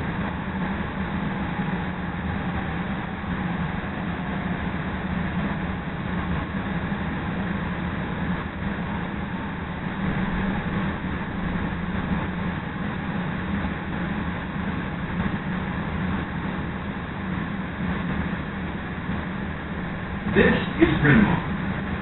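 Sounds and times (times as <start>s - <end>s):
train rumbling along track: 0.0s - 22.0s.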